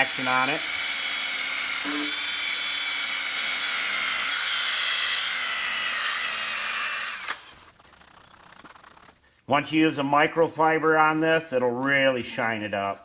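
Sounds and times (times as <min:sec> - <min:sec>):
electric drill high whine: 0:00.0 - 0:07.6.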